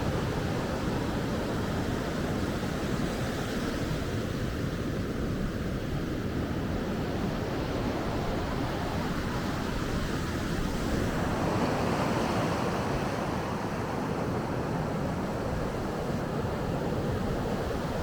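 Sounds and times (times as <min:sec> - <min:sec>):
sea waves breaking on shore: 0:06.6 - 0:18.0.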